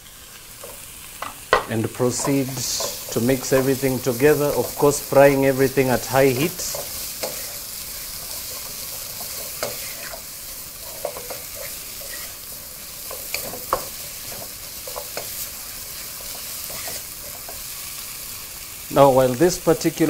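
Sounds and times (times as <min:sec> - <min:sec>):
vegetables sizzling in a pot: 0:00.0 - 0:20.0
wooden spoon scraping a pot: 0:06.5 - 0:17.7.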